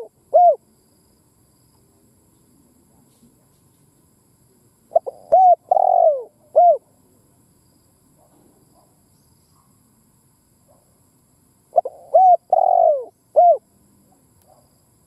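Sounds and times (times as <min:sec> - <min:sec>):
dove cooing: 0:00.0 - 0:00.6, 0:04.9 - 0:06.9, 0:11.7 - 0:13.7.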